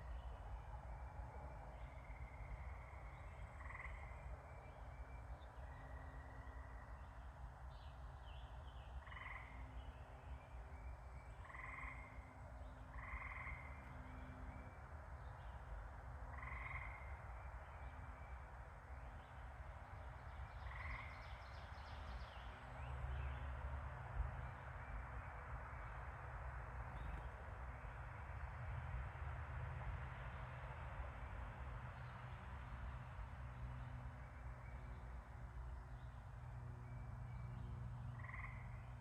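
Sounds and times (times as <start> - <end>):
frog croaking: 11.4 - 12.2, 12.9 - 13.8, 16.3 - 17.0, 38.1 - 38.9.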